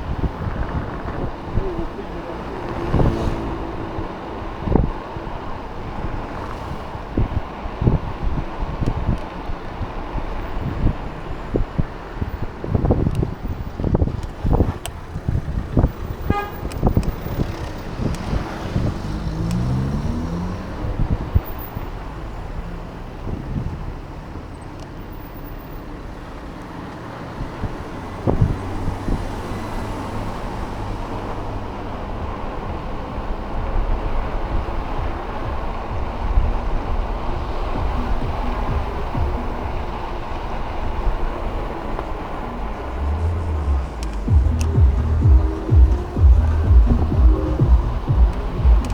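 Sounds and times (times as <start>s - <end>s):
wind rushing over microphone: 0.0s - 24.5s, 27.1s - 48.9s
road and traffic noise: 0.0s - 48.9s
steady low tone: 42.3s - 48.9s
knocks and bumps: 43.8s - 48.9s.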